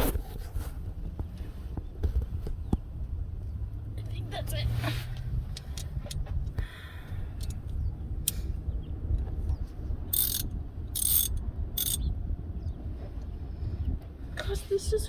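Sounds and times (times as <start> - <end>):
low steady rumble: 0.0 - 15.0
sharp metal clicks: 7.4 - 8.5, 9.5 - 12.1
wrench ratcheting: 10.1 - 12.0.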